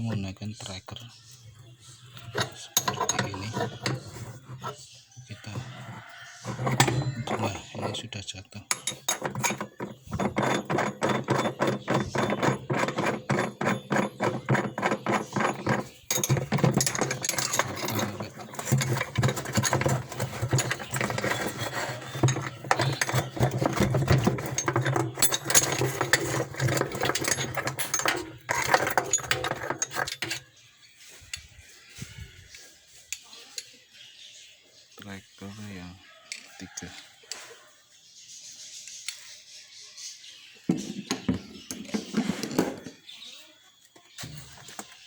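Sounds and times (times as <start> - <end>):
mechanical rattling: 8.7 - 30.4.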